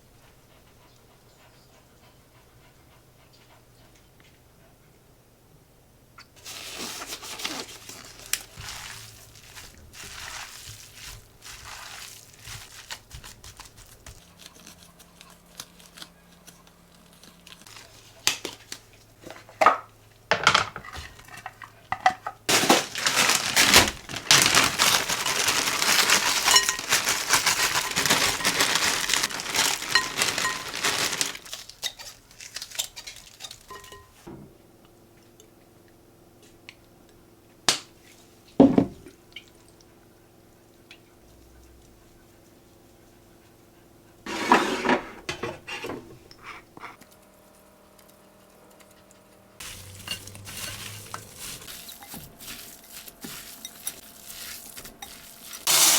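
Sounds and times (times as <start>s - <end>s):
packaging crinkling and tearing: 6.4s - 18.8s, 22.5s - 33.8s, 49.6s - 55.9s
dishes and utensils clinking: 24.5s - 32.0s, 33.4s - 34.2s, 49.6s - 54.1s.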